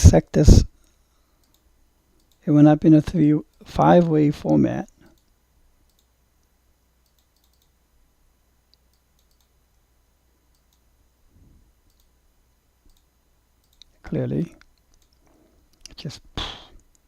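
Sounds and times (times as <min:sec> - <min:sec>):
computer mouse clicks: 0:01.4 - 0:02.4, 0:05.1 - 0:07.8, 0:08.7 - 0:09.6, 0:10.5 - 0:10.9, 0:11.9 - 0:12.2, 0:12.9 - 0:13.9, 0:14.5 - 0:16.0.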